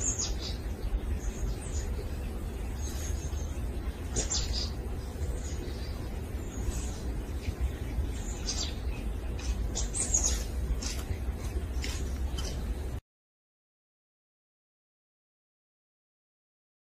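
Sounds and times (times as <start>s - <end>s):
birds chirping: 0.0s - 13.0s
steady low rumble: 0.0s - 13.0s.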